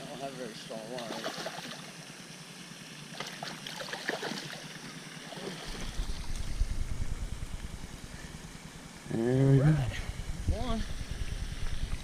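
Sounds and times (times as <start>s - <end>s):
water splashing from a hooked fish: 0.9s - 2.0s, 3.1s - 6.6s
wind buffeting microphone: 5.7s - 8.5s, 9.8s - 12.0s.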